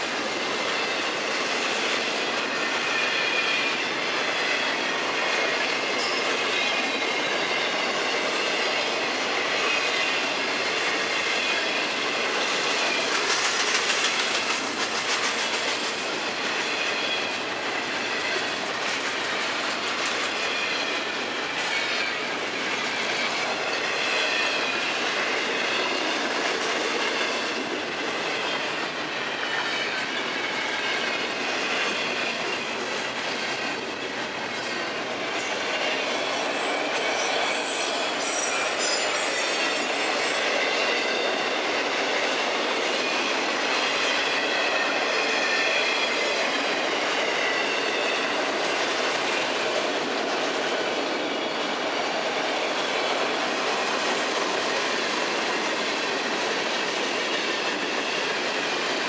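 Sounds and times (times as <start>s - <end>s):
train wheels clacking over joints: 0.0s - 59.0s
high-pitched wheel squeal: 35.4s - 40.7s.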